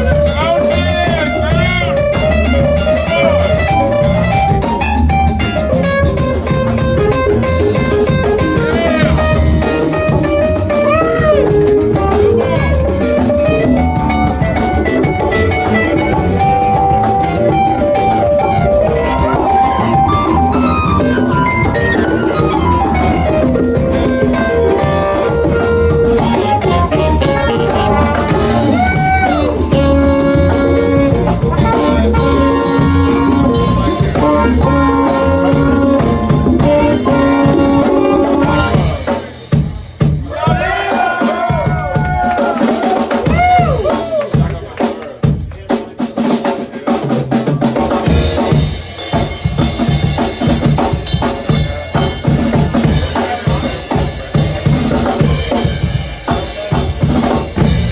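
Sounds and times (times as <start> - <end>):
lead line with bent notes: 0.0 - 39.5
electric bass: 0.0 - 40.3, 47.4 - 57.9
drum kit groove: 0.0 - 57.9.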